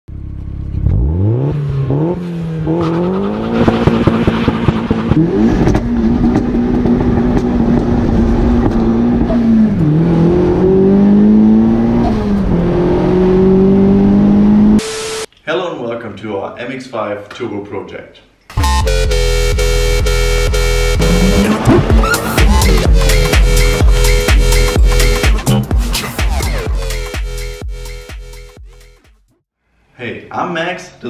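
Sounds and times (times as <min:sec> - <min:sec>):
car engine accelerating hard: 0:00.2 - 0:14.8, 0:19.1 - 0:25.3.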